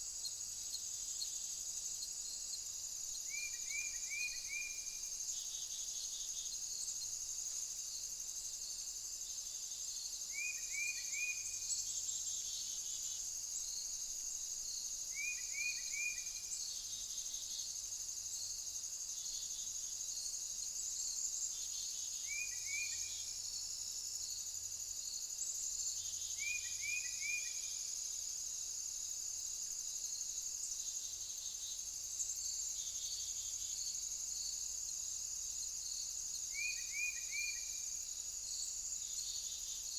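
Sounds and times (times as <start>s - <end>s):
cricket chorus: 0.0s - 39.9s.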